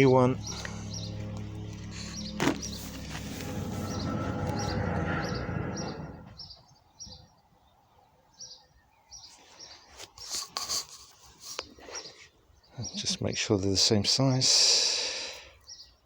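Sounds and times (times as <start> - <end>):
loud dense sound: 0.0 - 6.4
small bird chirping: 0.0 - 9.9.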